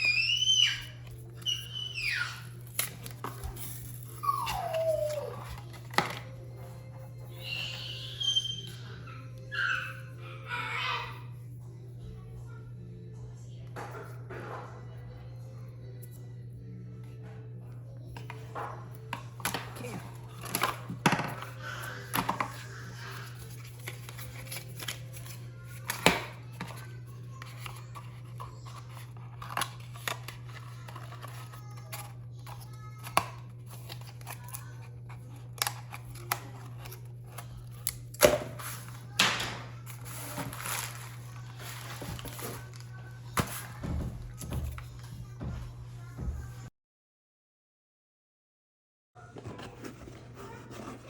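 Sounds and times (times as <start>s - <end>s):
packaging rustling: 39.9s - 42.8s.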